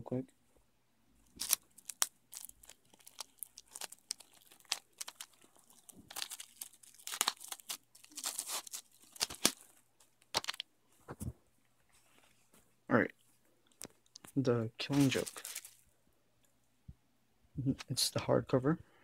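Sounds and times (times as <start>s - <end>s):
plastic shrink-wrap crinkling: 1.2s - 10.6s, 14.8s - 15.8s.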